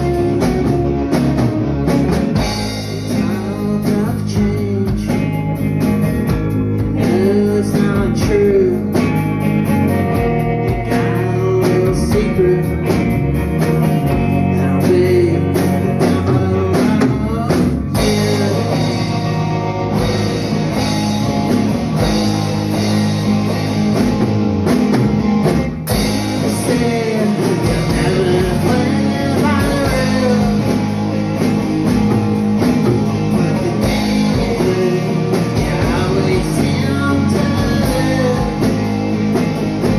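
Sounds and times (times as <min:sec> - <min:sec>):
drum kit: 0:00.0 - 0:39.9
guitar: 0:00.0 - 0:39.9
person singing: 0:02.7 - 0:05.7, 0:06.8 - 0:20.3, 0:26.4 - 0:31.2, 0:33.0 - 0:39.1.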